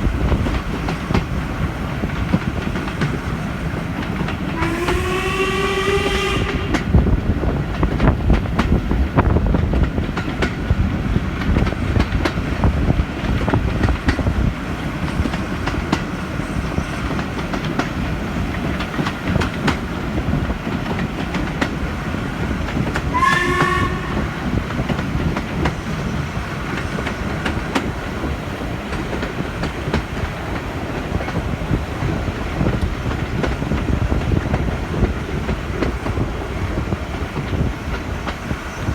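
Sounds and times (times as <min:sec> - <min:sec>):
steam train rumbling: 0:00.0 - 0:38.9
steam whistle: 0:04.6 - 0:07.0, 0:23.1 - 0:24.6
wheels clicking over rail joints: 0:06.4 - 0:38.9.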